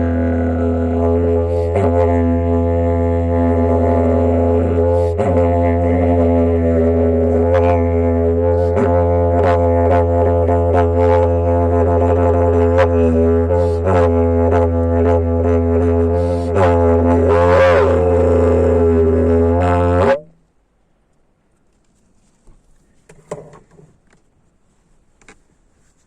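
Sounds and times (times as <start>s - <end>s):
didgeridoo drone: 0.0s - 20.4s.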